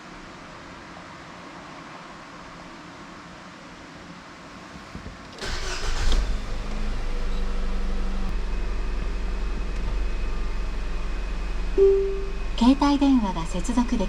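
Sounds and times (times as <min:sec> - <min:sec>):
car engine starting and idling: 0:05.4 - 0:14.0.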